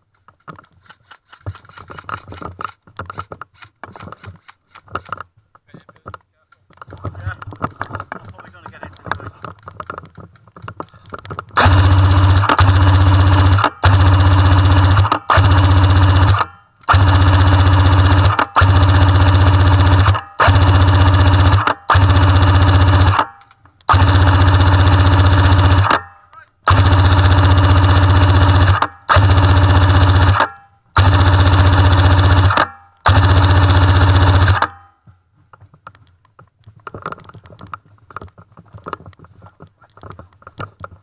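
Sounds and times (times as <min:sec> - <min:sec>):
airsoft gun firing full-auto bursts: 0:11.6 - 0:34.9.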